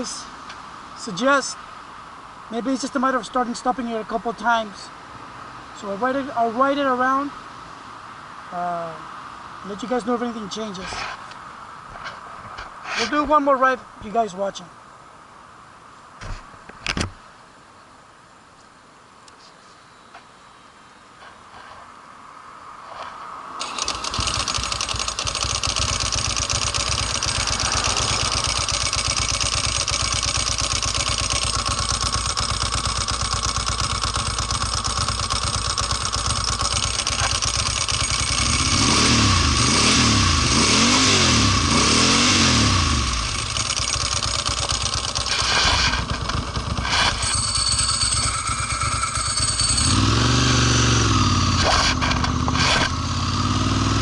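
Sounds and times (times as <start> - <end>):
motorcycle engine revving: 23.6 - 54.0.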